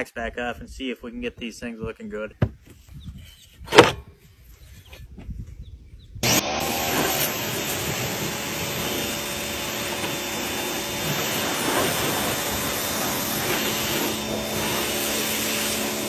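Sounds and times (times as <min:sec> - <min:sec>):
machine motor hissing and humming: 0:06.2 - 0:16.0.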